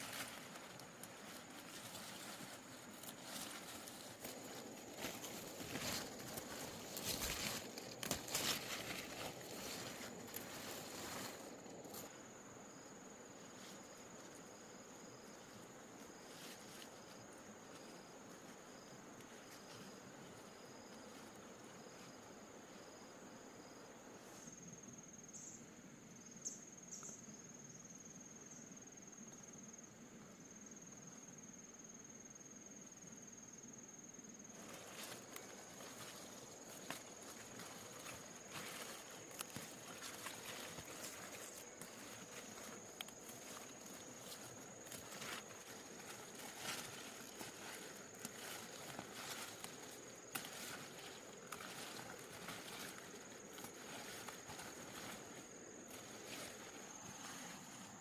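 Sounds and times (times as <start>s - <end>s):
rustling: 0.0s - 12.2s, 34.5s - 58.0s
insect chirping: 0.0s - 58.0s
insects trilling: 0.0s - 58.0s.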